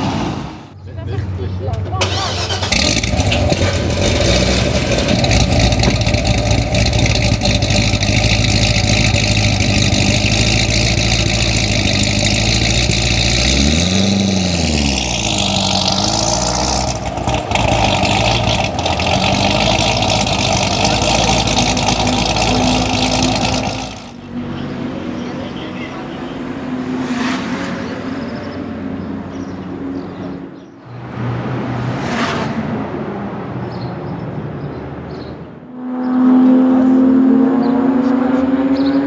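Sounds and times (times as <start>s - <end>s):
engine revving: 2.0s - 28.5s, 35.7s - 39.0s
car engine idling loudly: 2.5s - 24.4s.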